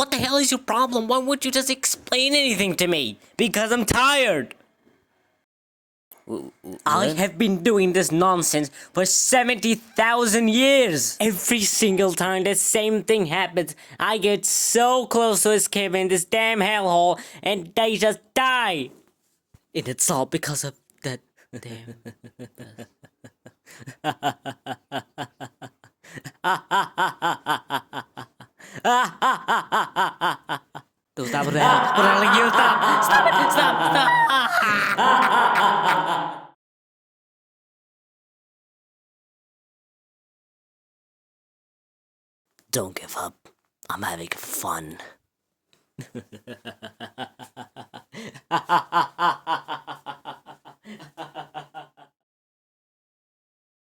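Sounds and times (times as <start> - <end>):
cartoon voice laughing: 31.3 - 36.5.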